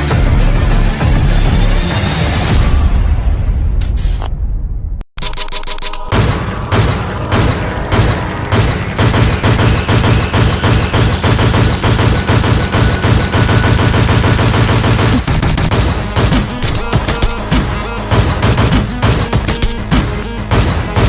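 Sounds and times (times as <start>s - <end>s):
music with heavy drum beat: 0.0s - 2.9s, 14.8s - 21.0s.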